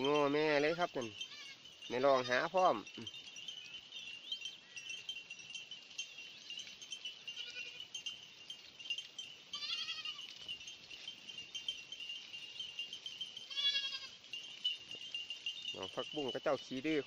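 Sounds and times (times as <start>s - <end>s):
goat bleating: 0.0s - 3.0s, 7.3s - 8.0s, 9.5s - 10.4s, 13.4s - 14.2s.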